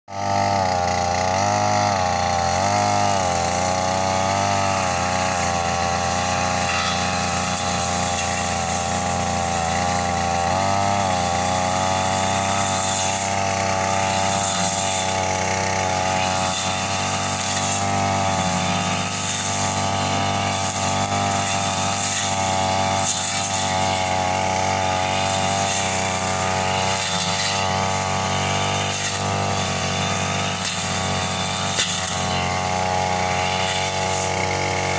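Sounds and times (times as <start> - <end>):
brush cutter engine at high revs: 0.1 - 34.9.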